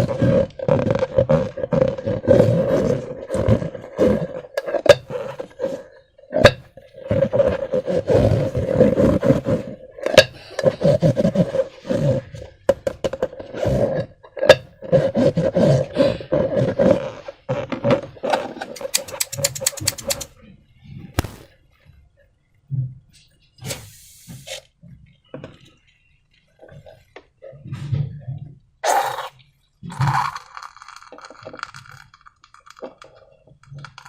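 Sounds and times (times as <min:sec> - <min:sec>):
slime squelching: 0:18.7 - 0:20.3
sharp clicks: 0:18.8 - 0:20.3.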